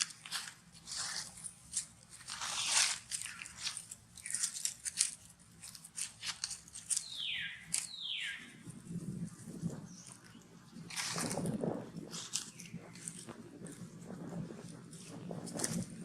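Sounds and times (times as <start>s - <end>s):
crackling crunching clicks: 1.2s - 8.0s.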